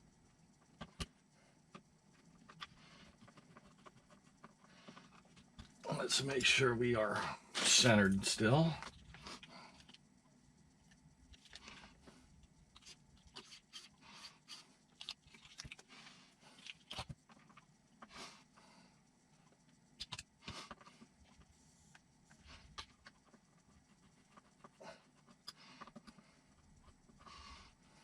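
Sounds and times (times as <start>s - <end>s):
small parts and tools clicking: 8.5s - 10.1s, 10.8s - 15.9s, 19.4s - 27.5s.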